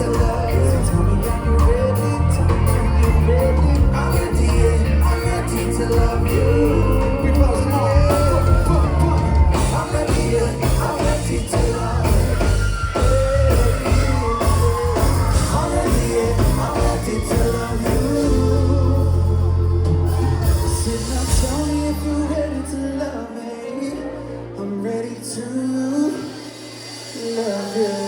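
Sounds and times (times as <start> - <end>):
heavy bass line: 0.0 - 23.2
person singing: 0.0 - 28.0.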